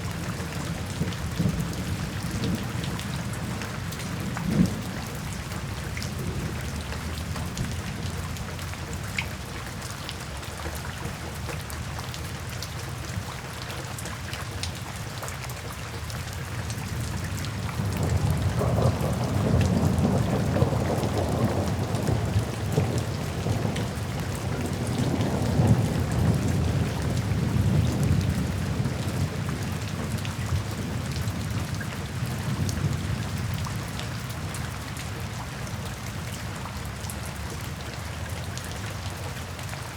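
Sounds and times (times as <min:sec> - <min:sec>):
steady rain with drop ticks: 0:00.0 - 0:39.9
soft rolling thunder: 0:17.5 - 0:34.0.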